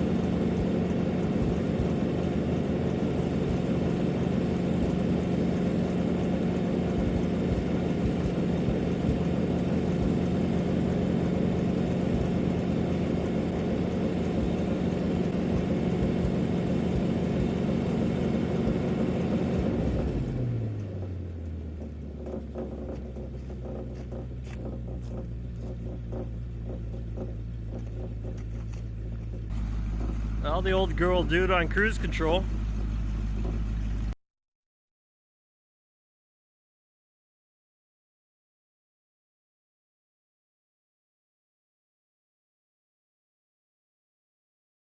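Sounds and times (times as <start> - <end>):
truck engine revving and idling: 0.0 - 34.2.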